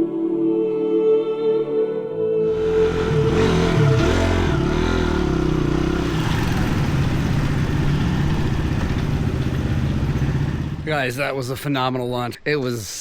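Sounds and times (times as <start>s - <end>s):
dirt bike engine revving: 2.5s - 11.1s.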